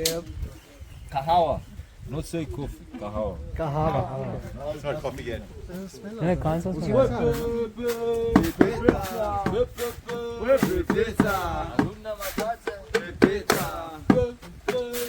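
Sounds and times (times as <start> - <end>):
people singing: 3.8 - 15.0.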